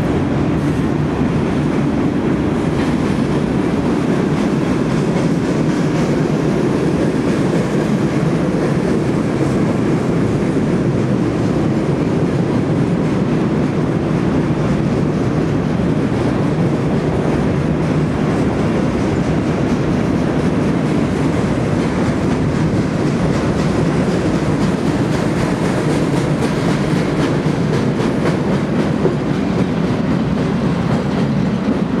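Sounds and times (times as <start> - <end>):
train wheels rumbling on rails: 0.0 - 32.0
faint rail clicking: 17.5 - 32.0.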